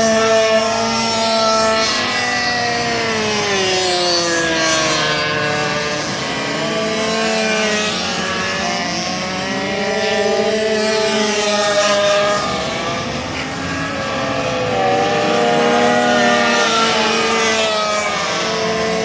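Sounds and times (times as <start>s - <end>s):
minibike engines revving: 0.0s - 19.0s.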